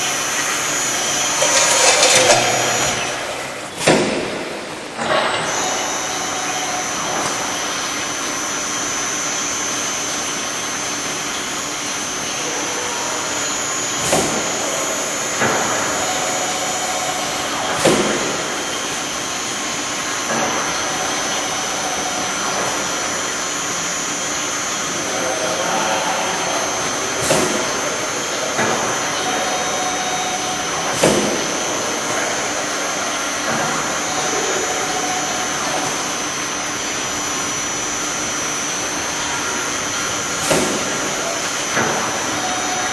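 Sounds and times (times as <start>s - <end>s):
metal-cutting saw running: 0.0s - 3.8s.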